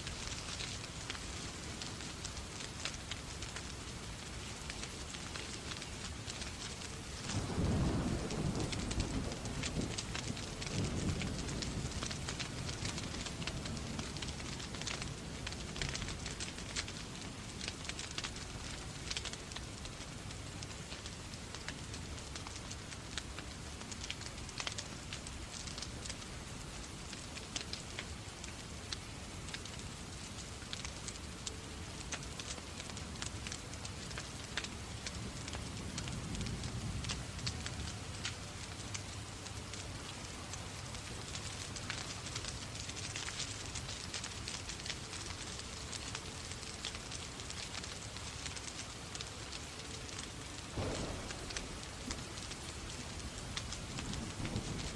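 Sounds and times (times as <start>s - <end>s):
rain hissing: 0.0s - 54.9s
wood fire crackling and popping: 0.0s - 54.9s
thunder rumble: 7.3s - 16.5s, 50.6s - 54.9s
low rumble: 50.8s - 53.2s.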